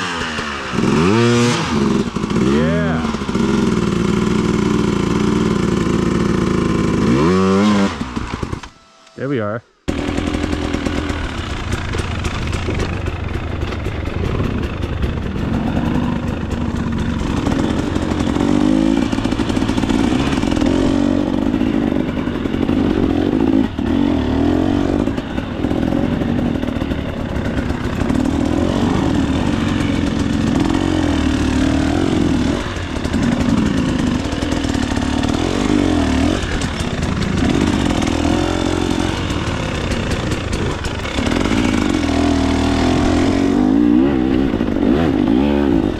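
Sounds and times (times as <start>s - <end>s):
dirt bike engine revving: 0.0s - 45.9s
bike clattering over rough ground: 10.1s - 23.9s, 32.0s - 43.6s.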